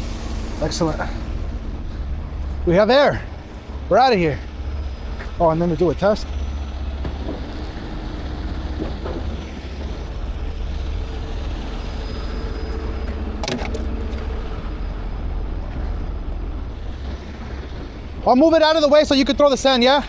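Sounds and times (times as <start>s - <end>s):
truck diesel engine idling: 0.0s - 20.0s.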